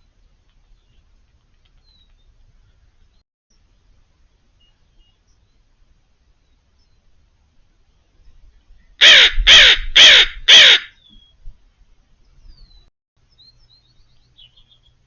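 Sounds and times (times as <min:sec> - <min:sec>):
faint high bird chirps: 0:04.5 - 0:05.7, 0:10.9 - 0:11.5, 0:12.2 - 0:15.0
crow cawing: 0:09.0 - 0:11.0.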